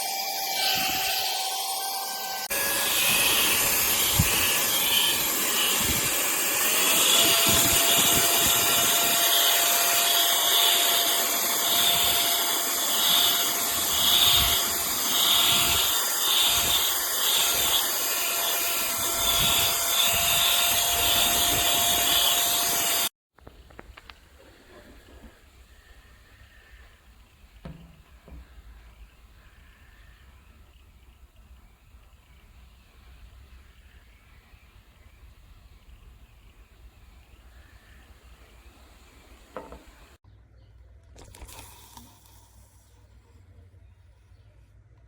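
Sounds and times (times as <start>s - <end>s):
handheld vacuum motor whining: 0.0s - 23.1s.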